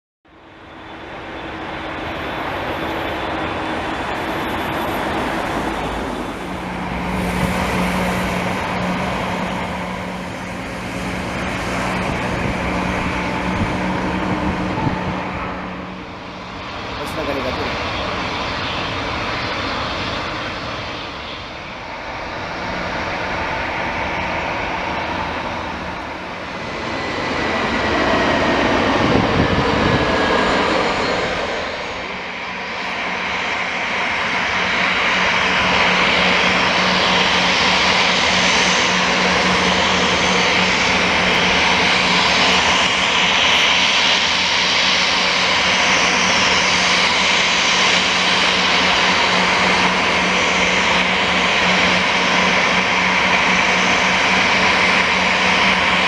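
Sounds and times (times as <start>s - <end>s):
constant low drone: 0.3s - 56.0s
turboprop engines running: 0.3s - 56.0s.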